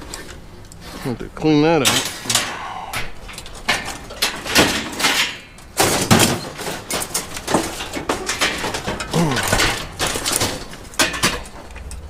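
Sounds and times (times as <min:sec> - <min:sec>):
scrap metal clanking onto pile: 0:01.8 - 0:02.6, 0:03.2 - 0:12.0.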